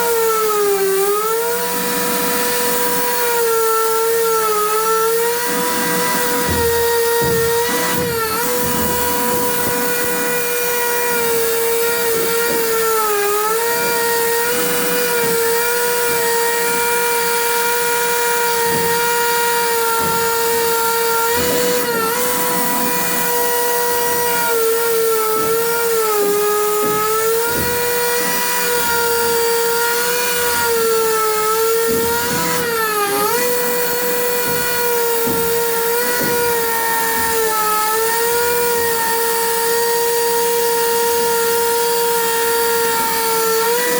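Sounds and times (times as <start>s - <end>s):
power tool motor whining: 0.0s - 43.9s
knocks: 5.3s - 41.0s.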